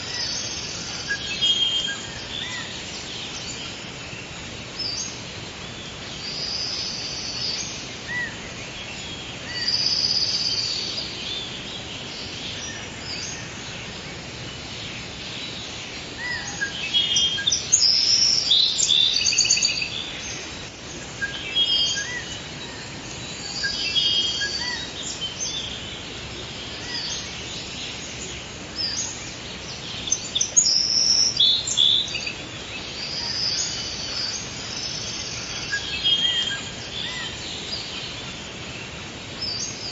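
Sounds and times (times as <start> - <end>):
birds singing and calling: 0.0 - 39.9
steady background hiss: 0.0 - 39.9.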